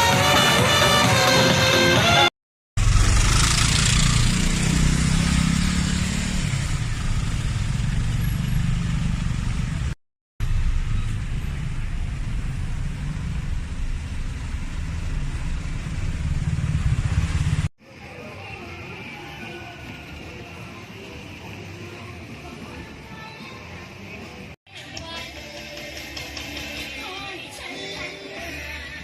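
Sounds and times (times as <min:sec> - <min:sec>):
motorbikes and cars passing: 0:02.8 - 0:17.7, 0:19.0 - 0:24.6.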